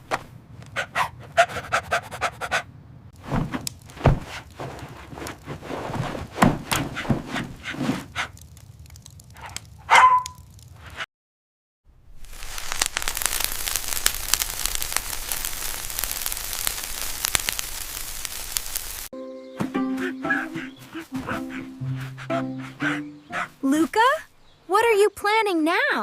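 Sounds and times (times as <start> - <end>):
dog panting: 0.8 - 2.7, 20.6 - 23.6.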